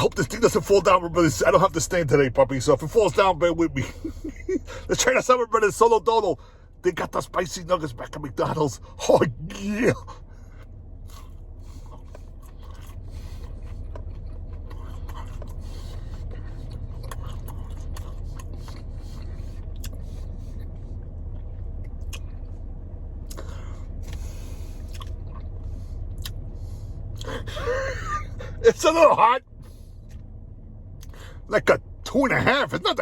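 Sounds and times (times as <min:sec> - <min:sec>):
steady low hum: 0:00.0 - 0:33.0
crunchy chewing: 0:11.0 - 0:22.5, 0:23.2 - 0:26.5.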